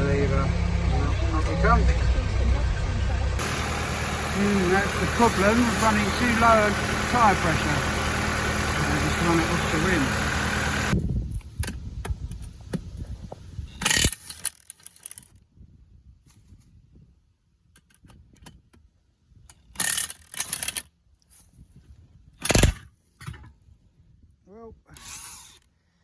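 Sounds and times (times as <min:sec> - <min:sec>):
tractor engine running: 0:00.0 - 0:11.0
short rattling bursts: 0:03.4 - 0:11.0.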